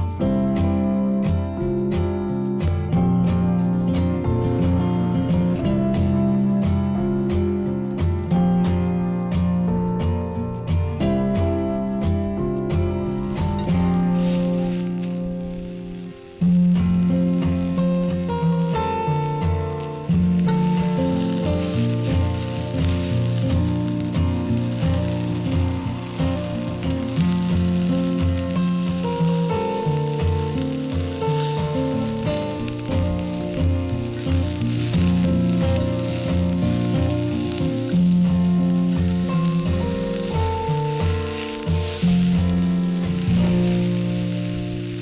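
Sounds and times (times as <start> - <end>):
background music: 0.0 - 45.0
food sizzling on a grill: 12.8 - 45.0.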